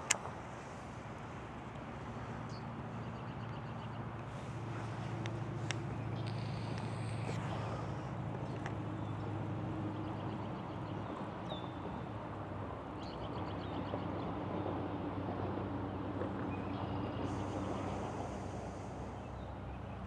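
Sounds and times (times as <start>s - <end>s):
outdoor background rumble: 0.0s - 20.0s
faint bird chirps and trills: 2.2s - 12.0s.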